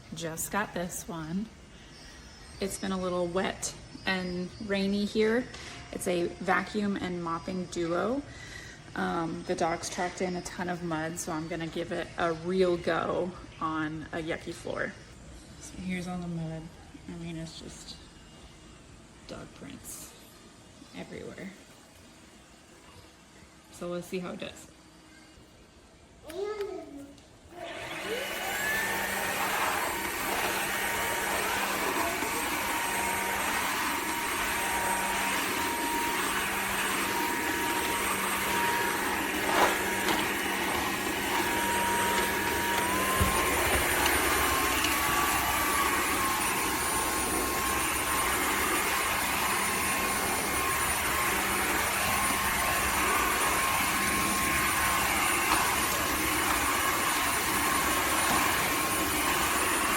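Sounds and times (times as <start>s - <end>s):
vacuum mop motor whine: 27.5s - 59.9s.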